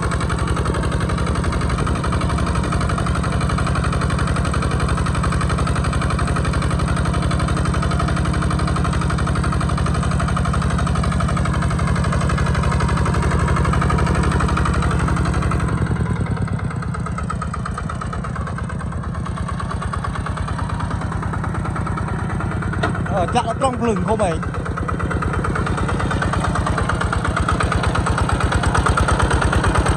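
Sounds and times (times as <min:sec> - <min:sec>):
diesel engine chugging: 0:00.0 - 0:29.9.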